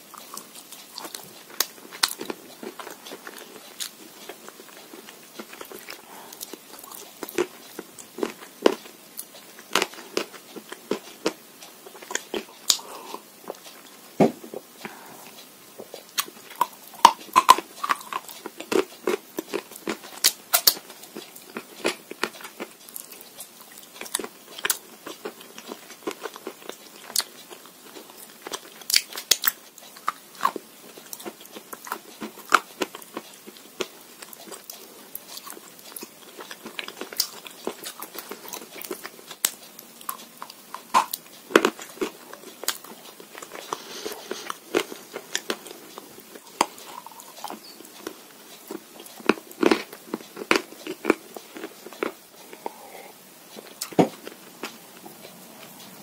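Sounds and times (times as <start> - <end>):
chalk crunching when chewed: 0.1 - 55.8.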